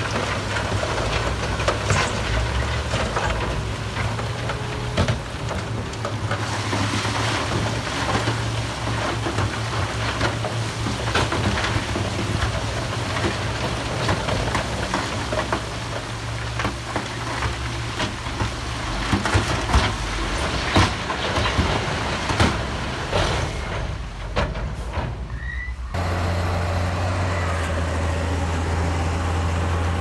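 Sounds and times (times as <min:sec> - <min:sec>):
heavy diesel machinery running: 0:26.0 - 0:30.0.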